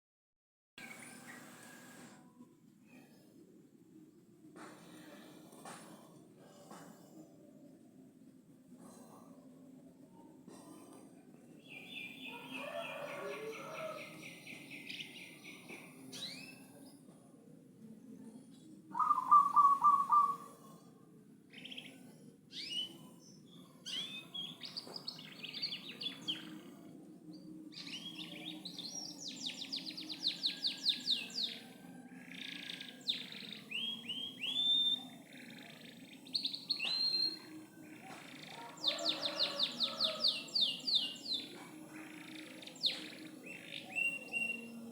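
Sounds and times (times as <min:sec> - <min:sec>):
canary singing with trills: 0:18.9 - 0:20.7, 0:22.5 - 0:26.6, 0:27.4 - 0:44.9.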